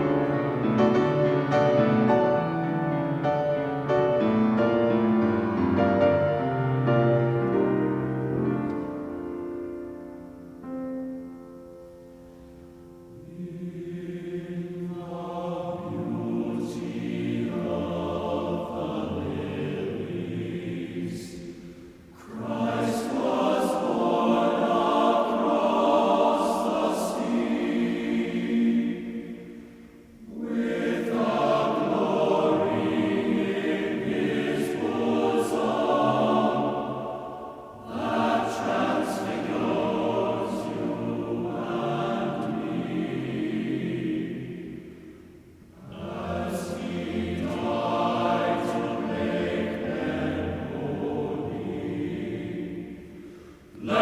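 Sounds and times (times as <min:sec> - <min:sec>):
choir singing held chords: 0:00.0 - 0:11.3, 0:11.9 - 0:54.0.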